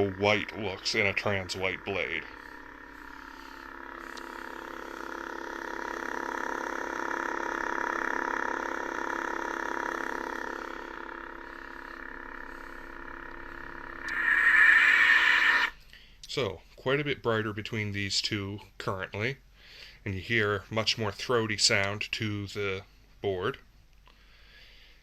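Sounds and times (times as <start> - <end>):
lightsaber hum drone: 0.0 - 15.8
bright lightsaber burst: 14.0 - 15.8.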